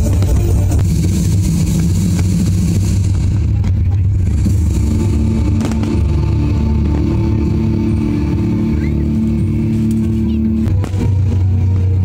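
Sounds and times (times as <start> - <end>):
sharp firework cracks: 0.0 - 7.4
fireworks bursting rumble: 0.0 - 12.0.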